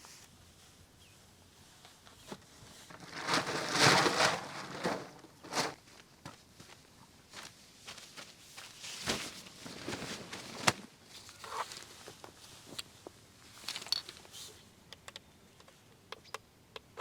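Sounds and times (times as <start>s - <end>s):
rustling: 0.0s - 5.8s, 7.8s - 14.7s
footsteps: 2.3s - 12.8s.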